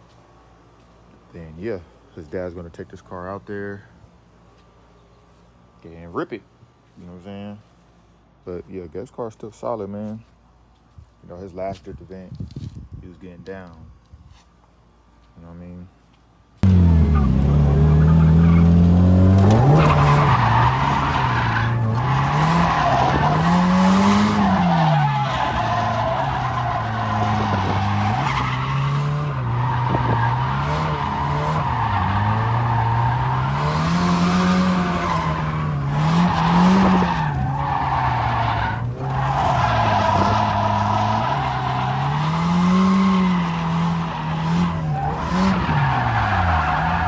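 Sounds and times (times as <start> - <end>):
car engine revving: 16.6 - 47.0
tyres squealing: 16.6 - 47.0.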